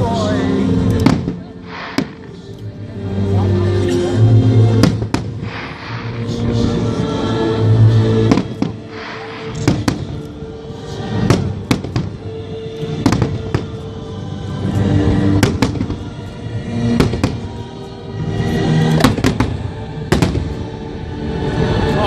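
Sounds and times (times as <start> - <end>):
music playing: 0.0 - 22.0
fireworks bangs and crackles: 0.9 - 2.6, 4.7 - 6.8, 8.2 - 13.8, 14.8 - 17.7, 18.7 - 20.8.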